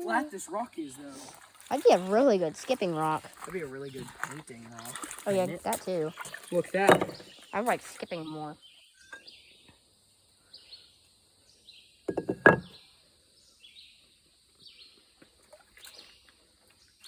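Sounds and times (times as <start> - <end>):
faint outdoor background: 0.0 - 17.0.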